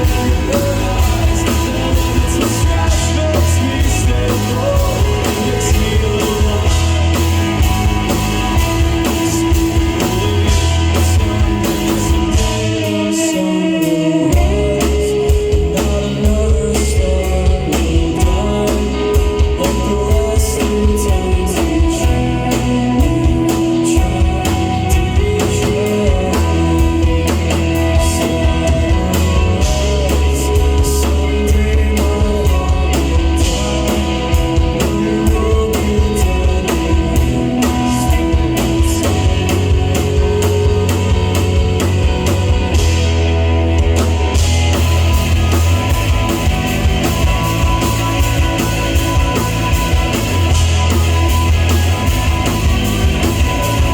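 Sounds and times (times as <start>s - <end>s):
person singing: 0.0s - 42.8s
live rock band playing: 0.0s - 53.9s.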